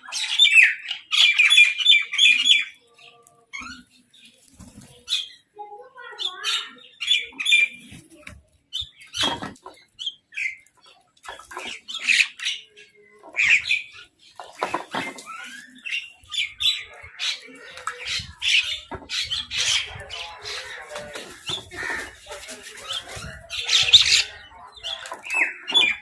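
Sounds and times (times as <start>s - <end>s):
crows and mynahs calling: 14.6s - 26.0s.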